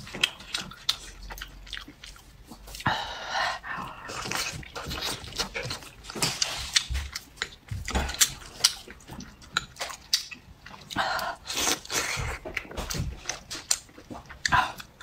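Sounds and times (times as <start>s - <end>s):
chewing: 0.0s - 15.0s.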